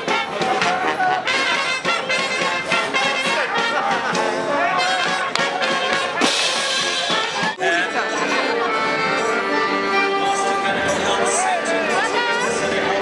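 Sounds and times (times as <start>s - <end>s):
drum beats: 0.0s - 12.6s
brass band playing: 0.0s - 13.0s.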